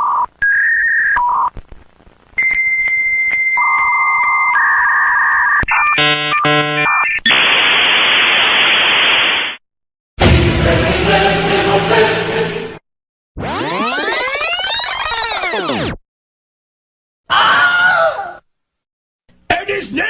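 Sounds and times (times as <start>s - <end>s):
buzzy chord: 13.4s - 16.0s
modem beeping tones: 13.4s - 16.0s.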